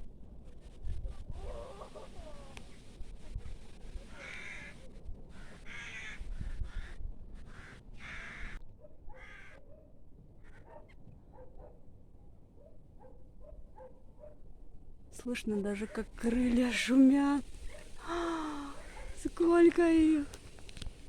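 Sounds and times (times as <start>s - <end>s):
crows cawing: 4.2s - 9.6s.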